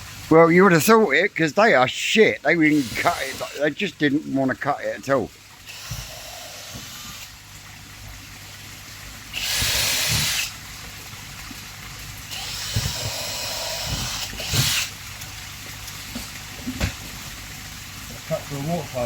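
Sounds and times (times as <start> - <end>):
power drill running: 2.7 - 3.6, 5.7 - 7.3, 9.3 - 10.6, 12.3 - 14.9.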